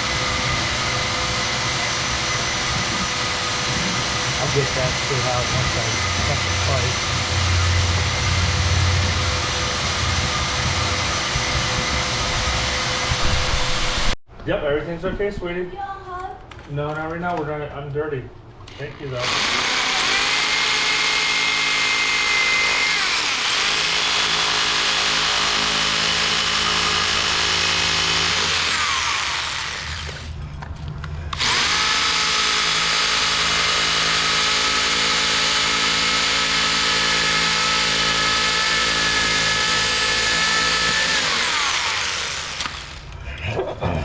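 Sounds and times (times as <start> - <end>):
power tool cutting a pipe: 0.0 - 14.2, 18.7 - 30.4, 31.3 - 43.1.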